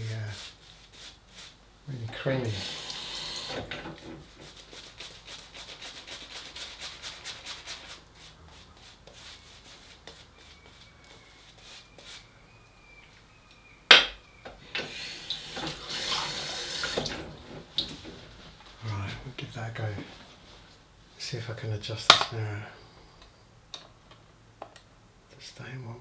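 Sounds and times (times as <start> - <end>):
rubbing shaving lather: 4.3 - 12.3.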